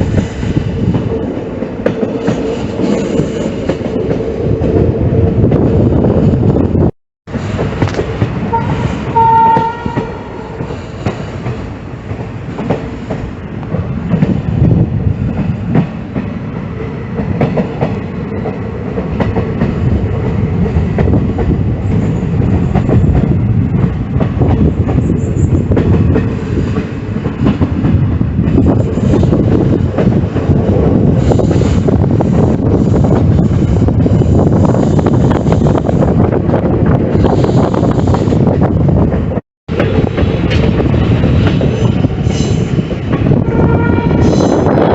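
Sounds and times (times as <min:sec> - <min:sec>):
train rumble: 0:00.0 - 0:44.9
train horn blast: 0:08.4 - 0:10.6, 0:43.3 - 0:44.6.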